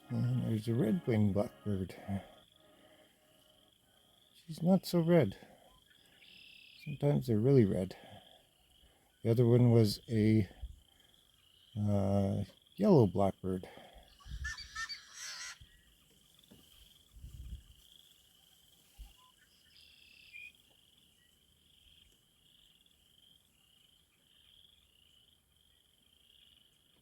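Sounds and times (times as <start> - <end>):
high-pitched trilling chorus: 0.0 - 2.9
bird calling: 0.0 - 13.4, 14.0 - 17.0.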